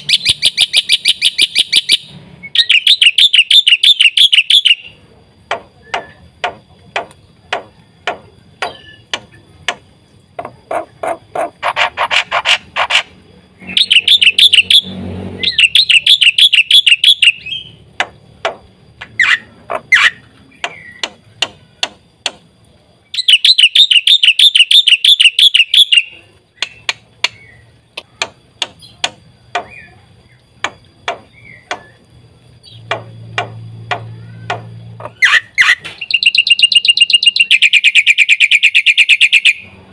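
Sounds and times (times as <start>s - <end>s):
bird singing clicky notes: 5.5s - 11.2s, 13.7s - 39.7s
bird rapid trills: 7.6s - 21.9s, 23.2s - 39.7s.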